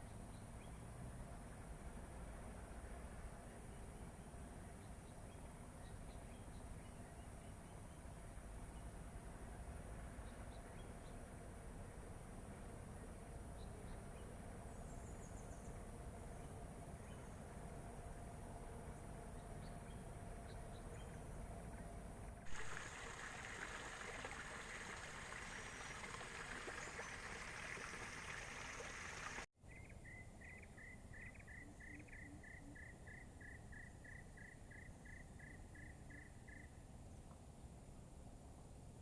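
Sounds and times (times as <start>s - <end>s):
steady hiss: 22.5s - 29.5s.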